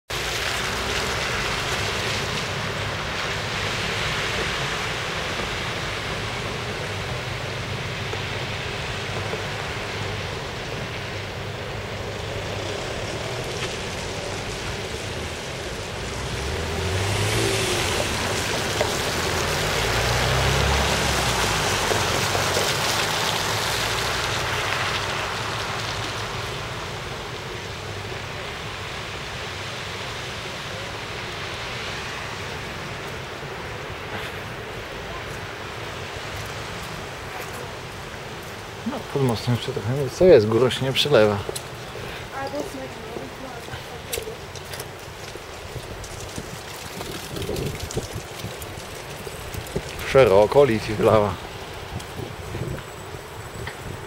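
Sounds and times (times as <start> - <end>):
river rushing in flood: 0.1 - 54.0
vehicle passing: 0.1 - 54.0.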